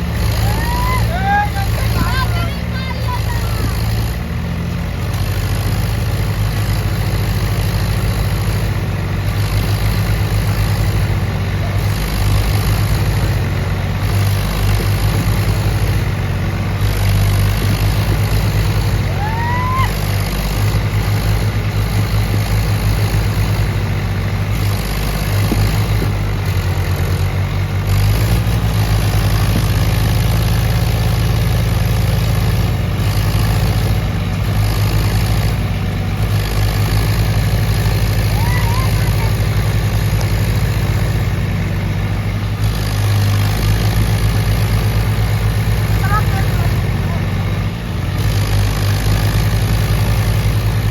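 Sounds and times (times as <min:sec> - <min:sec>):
tractor engine rumbling: 0:00.0 - 0:50.9.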